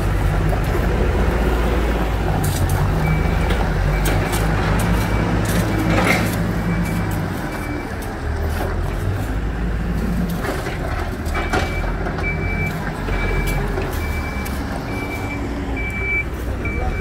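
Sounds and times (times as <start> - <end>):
diesel engine running: 0.0 - 17.0
reversing alarm beeping: 3.0 - 8.1, 11.3 - 17.0.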